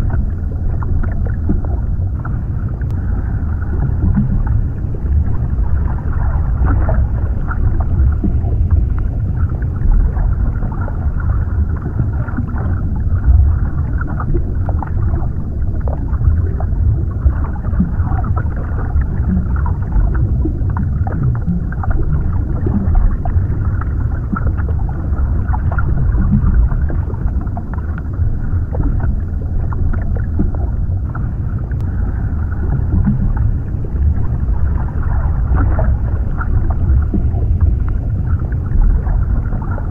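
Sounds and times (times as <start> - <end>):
small underwater clicks: 0.0 - 3.0
low underwater rumble: 0.0 - 39.9.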